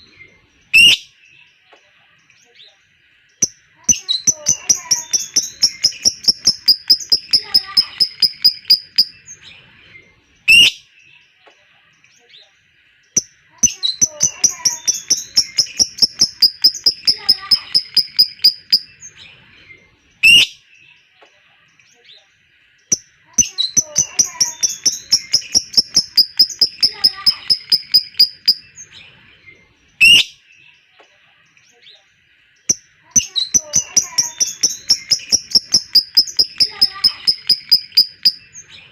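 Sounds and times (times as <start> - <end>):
bird chirping rapidly: 3.4 - 9.4, 13.2 - 19.2, 22.9 - 28.9, 32.7 - 38.9.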